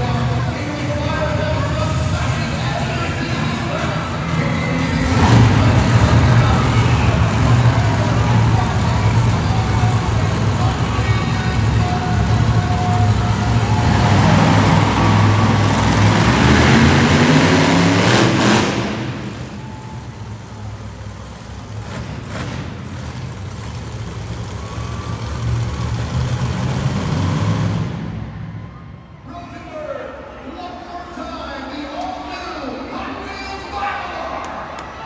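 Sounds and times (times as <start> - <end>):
truck engine revving: 0.0 - 28.6.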